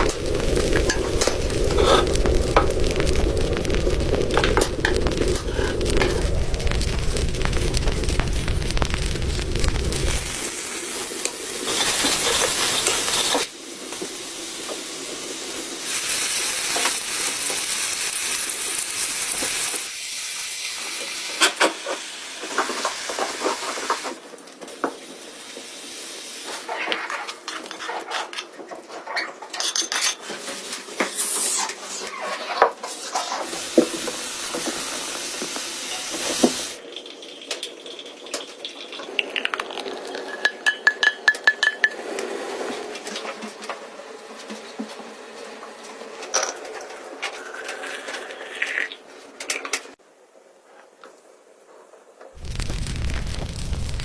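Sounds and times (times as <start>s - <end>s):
pancakes sizzling in a pan: 0.0s - 27.8s, 32.9s - 40.4s, 52.4s - 54.0s.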